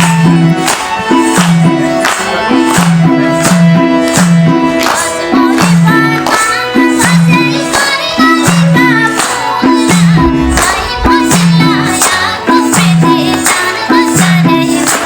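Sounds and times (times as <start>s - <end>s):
bass line: 9.9s - 12.1s
drum strokes: 9.9s - 12.3s.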